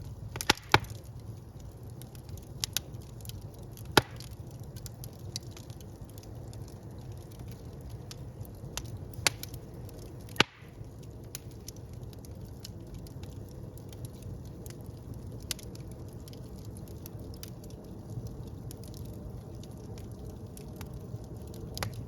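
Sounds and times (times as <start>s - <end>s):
loud sharp pops of fire: 0.0s - 22.0s
wood fire rumbling and crackling: 0.0s - 22.0s.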